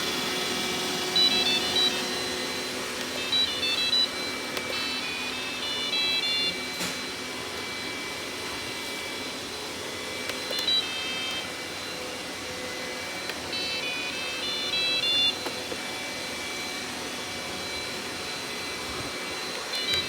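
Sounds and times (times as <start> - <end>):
robot vacuum whirring: 0.0 - 20.0
electronic beep tunes: 1.2 - 7.1, 10.5 - 11.5, 13.5 - 15.4, 19.7 - 20.0.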